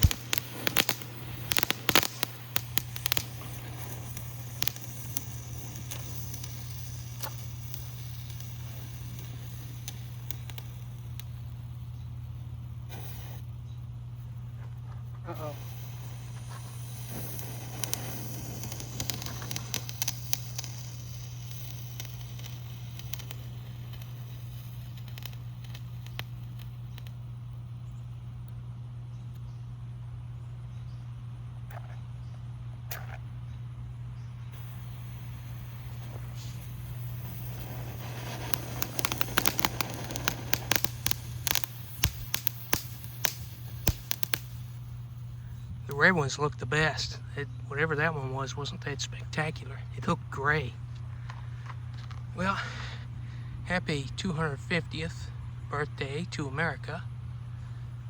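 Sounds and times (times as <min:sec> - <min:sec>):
firework pops and crackles: 0:00.0 - 0:13.6, 0:15.2 - 0:28.2, 0:34.5 - 0:46.1
steady low hum: 0:00.0 - 0:58.0.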